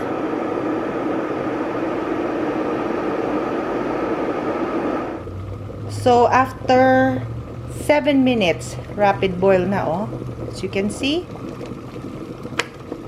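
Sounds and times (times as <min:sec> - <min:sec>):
electric kettle heating water: 0:00.0 - 0:13.0.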